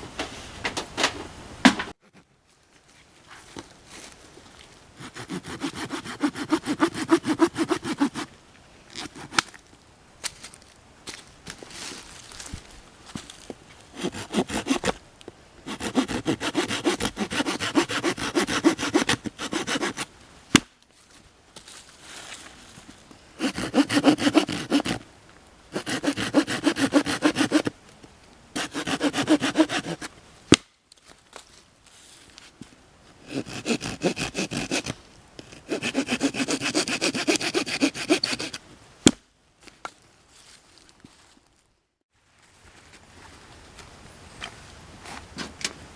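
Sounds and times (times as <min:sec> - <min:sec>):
hand saw cutting wood: 0:05.0 - 0:08.3, 0:09.0 - 0:09.4, 0:14.0 - 0:15.0, 0:15.7 - 0:20.1, 0:23.4 - 0:25.0, 0:25.7 - 0:27.7, 0:28.6 - 0:30.1, 0:33.2 - 0:38.6.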